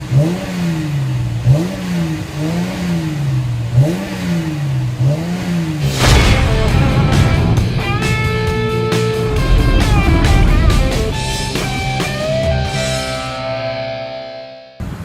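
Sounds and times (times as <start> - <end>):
car exhaust revving: 0.0 - 13.7
music: 5.8 - 14.8.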